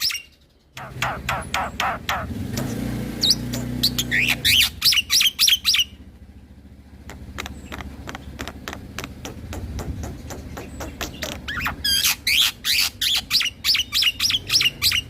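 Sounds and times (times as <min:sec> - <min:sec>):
bird singing chips and whistles: 0:00.0 - 0:02.3, 0:03.2 - 0:05.9, 0:10.3 - 0:15.0.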